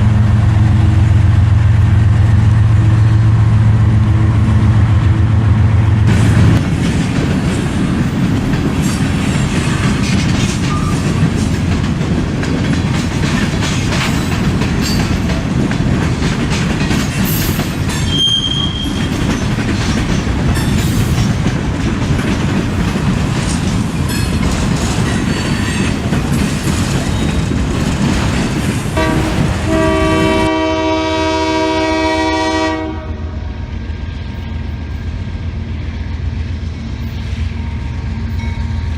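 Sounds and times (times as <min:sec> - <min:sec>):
train wheels clattering over rails: 0:05.9 - 0:31.7
wheel squeal: 0:17.9 - 0:19.2
locomotive air horn: 0:29.0 - 0:33.6.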